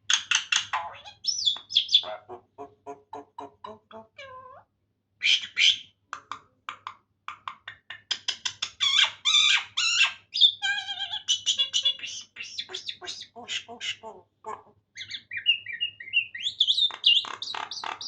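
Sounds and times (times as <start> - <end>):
myna squawking and chattering: 0.5 - 5.9, 8.6 - 18.0.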